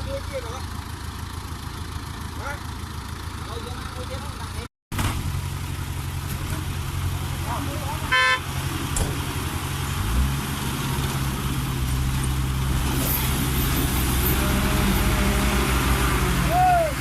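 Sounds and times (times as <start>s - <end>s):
heavy diesel engine revving: 5.0s - 17.0s.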